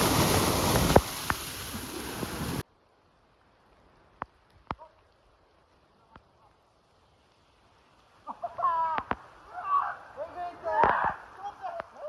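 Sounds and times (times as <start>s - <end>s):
wind and heavy rain rushing: 0.0s - 3.7s.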